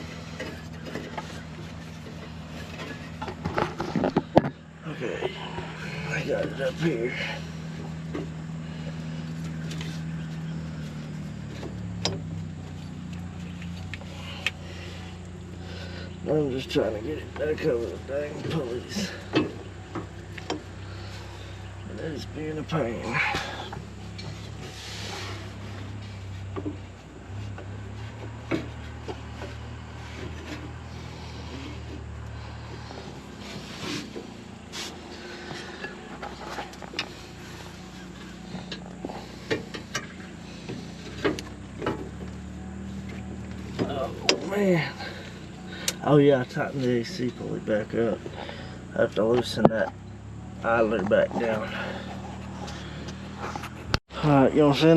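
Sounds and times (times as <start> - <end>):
belt knocking and rubbing on pulleys: 0.0 - 54.0
engine idling: 0.0 - 54.9.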